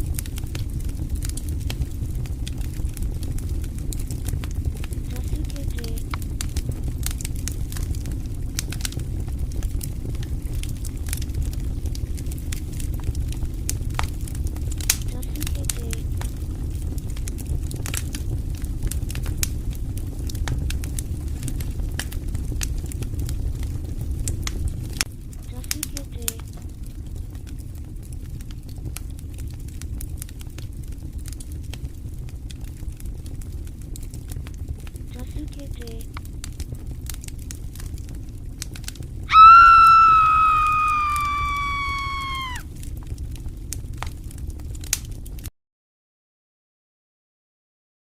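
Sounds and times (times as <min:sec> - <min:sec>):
campfire crackling and popping: 0:00.0 - 0:45.5
low rumble of burning wood: 0:00.0 - 0:45.5
loud high scream: 0:39.3 - 0:42.7.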